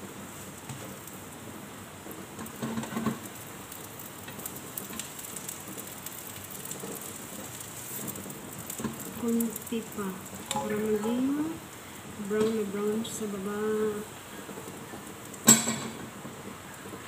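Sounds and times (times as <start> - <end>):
omelette sizzling in oil: 0.0 - 17.0
pan clatter: 10.4 - 11.3, 15.4 - 16.1.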